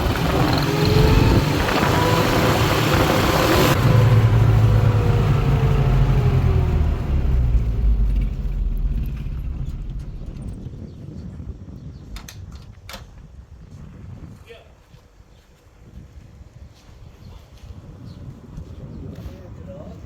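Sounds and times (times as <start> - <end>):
vehicle engine driving off: 0.0 - 12.2.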